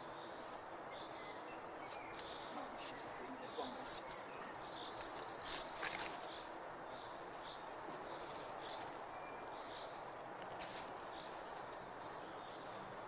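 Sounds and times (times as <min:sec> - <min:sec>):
birds chirping: 0:00.0 - 0:10.1
background hiss: 0:00.0 - 0:13.0.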